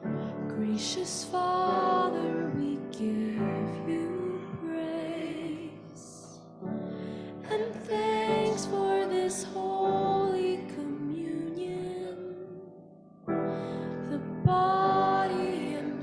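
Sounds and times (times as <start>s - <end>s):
congregation singing a hymn: 0.5s - 6.4s, 14.0s - 16.0s.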